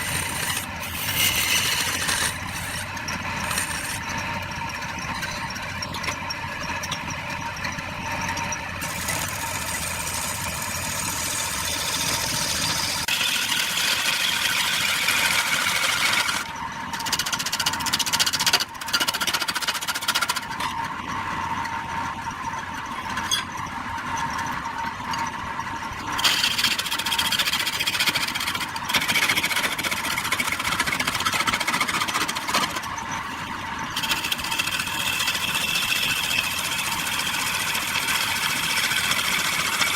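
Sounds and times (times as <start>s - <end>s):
turning tool cutting wood: 0.0s - 4.2s, 8.8s - 16.5s, 26.1s - 32.9s, 34.0s - 39.9s
wood lathe humming: 0.0s - 4.3s, 8.8s - 16.5s, 33.4s - 39.9s.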